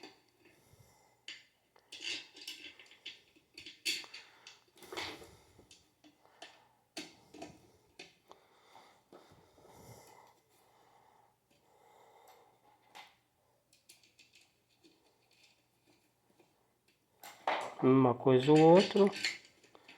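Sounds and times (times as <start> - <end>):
faint clicks of metal parts: 1.2 - 8.4, 11.4 - 19.9.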